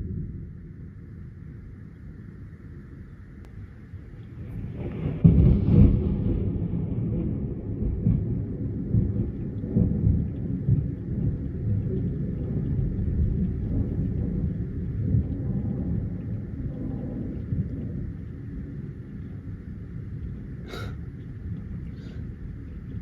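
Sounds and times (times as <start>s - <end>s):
thunder rumbling: 3.5s - 23.0s.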